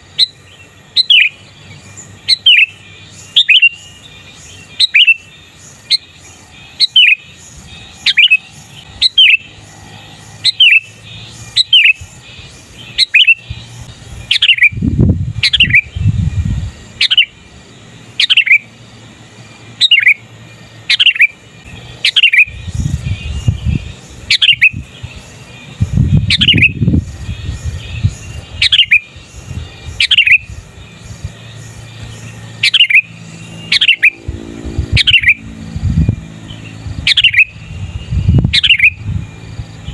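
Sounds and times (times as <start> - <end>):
bird giving sharp calls: 2.2 - 9.7, 10.3 - 14.8, 18.2 - 18.7, 19.8 - 25.3, 26.2 - 35.6, 36.4 - 39.0
low rumbles: 21.6 - 39.9.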